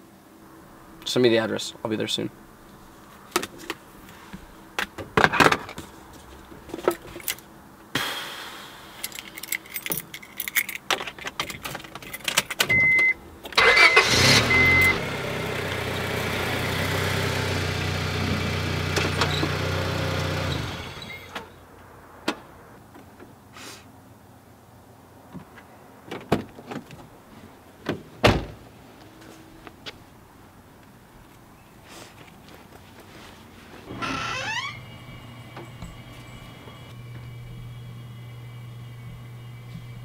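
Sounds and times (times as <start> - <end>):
car keys jingling: 9.1 - 13.1
car warning chime beeping: 12.7 - 15.1
car engine starting and running: 12.7 - 22.5.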